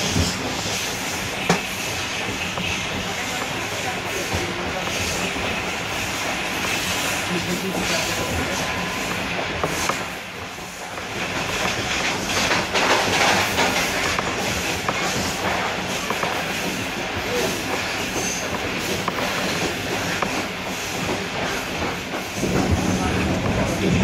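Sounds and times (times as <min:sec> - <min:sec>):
train wheels rushing on rail: 0:00.0 - 0:24.0
clicks from rail joints: 0:11.0 - 0:16.9.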